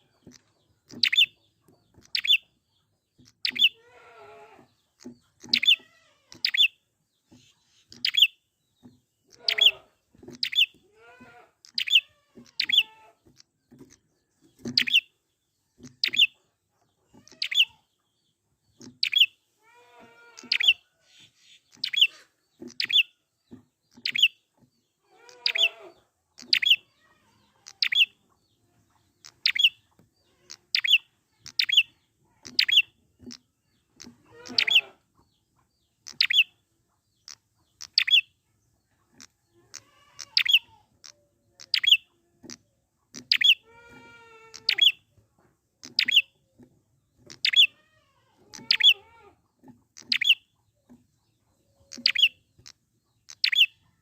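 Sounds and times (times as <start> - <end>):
bird chattering calls: 0.4 - 1.4, 3.3 - 3.8, 5.0 - 6.8, 9.3 - 10.8, 11.7 - 12.9, 20.4 - 23.1, 29.1 - 33.4, 34.0 - 34.9, 39.2 - 43.6, 44.5 - 45.0, 45.8 - 46.3, 47.3 - 47.8, 48.5 - 49.0, 50.0 - 50.5, 51.8 - 53.8.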